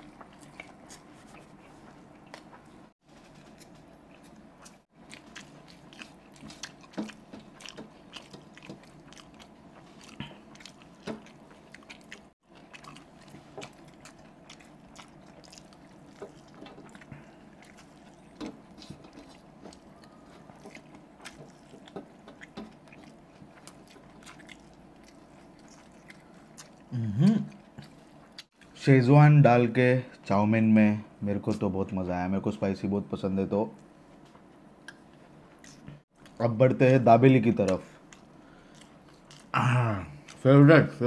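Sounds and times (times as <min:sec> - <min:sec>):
chewing noodles with mouth clicks: 0:00.0 - 0:28.8, 0:38.0 - 0:40.4.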